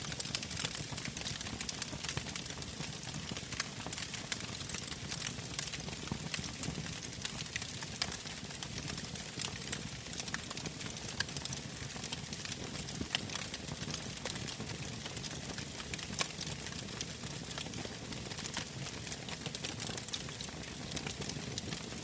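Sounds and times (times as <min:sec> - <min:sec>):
bonfire crackling and popping: 0:00.0 - 0:22.0.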